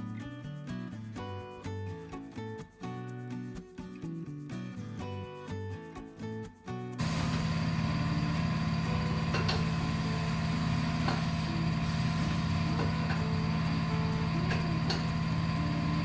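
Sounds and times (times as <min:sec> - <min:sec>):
electric motor humming: 0:07.0 - 0:16.0.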